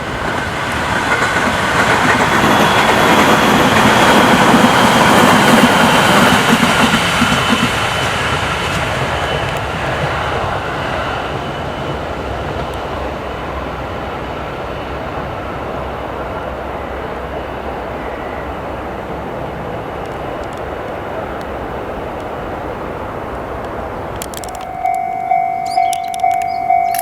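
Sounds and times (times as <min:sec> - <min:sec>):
electric train passing: 0:00.0 - 0:27.0
sharp clicks: 0:24.2 - 0:27.0.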